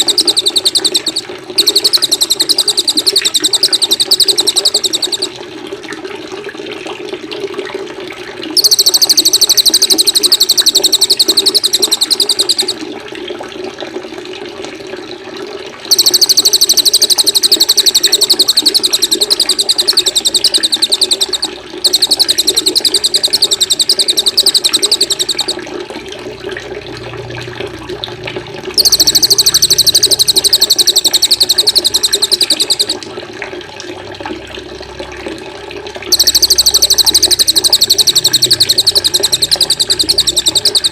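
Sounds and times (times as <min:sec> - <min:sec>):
songbird trilling: 0:00.0 - 0:05.3, 0:08.6 - 0:12.8, 0:15.9 - 0:25.6, 0:28.8 - 0:33.0, 0:36.1 - 0:40.9
running water: 0:00.0 - 0:13.3, 0:14.0 - 0:40.9.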